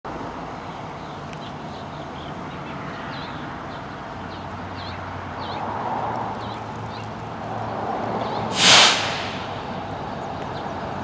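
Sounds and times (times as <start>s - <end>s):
small bird chirping: 6.3s - 7.4s.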